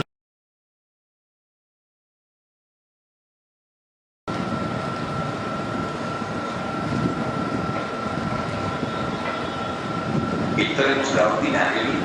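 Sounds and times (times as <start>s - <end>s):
high-pitched whine: 4.3s - 12.0s
train low rumble: 4.3s - 12.0s.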